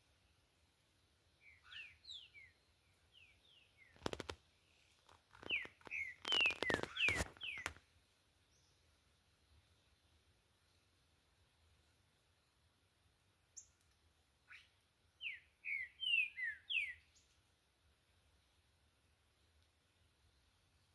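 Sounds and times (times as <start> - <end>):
bird chirping: 1.4 - 9.0, 13.5 - 17.5.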